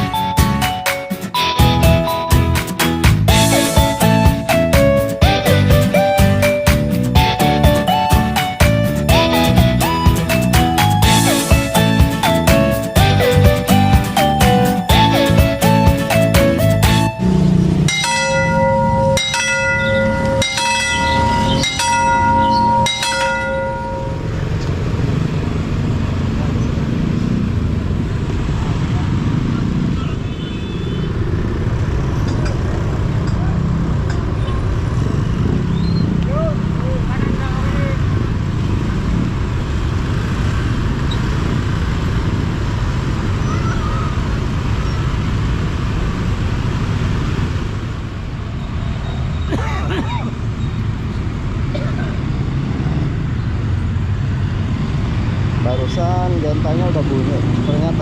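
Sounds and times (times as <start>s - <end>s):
road traffic rumble: 0.0s - 58.0s
level crossing warning bell: 16.9s - 25.0s.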